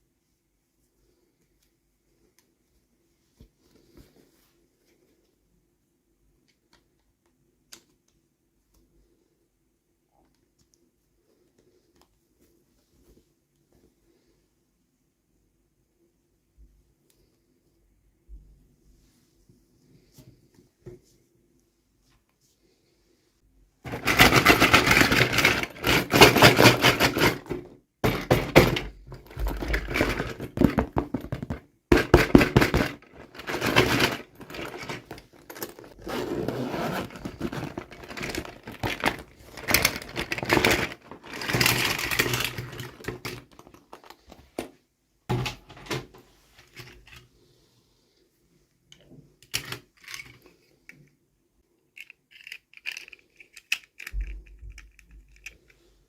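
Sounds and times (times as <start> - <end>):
plastic and paper packaging crinkling: 36.8 - 42.6.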